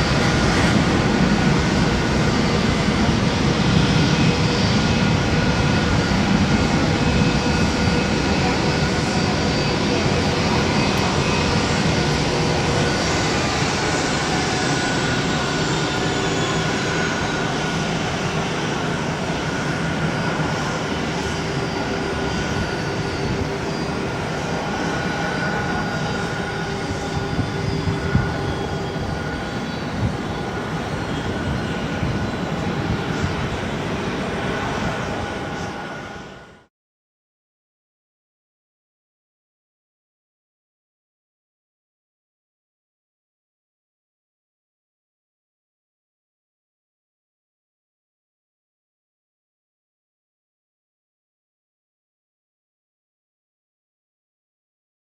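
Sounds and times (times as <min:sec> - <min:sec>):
jet engines roaring: 0:00.0 - 0:36.7.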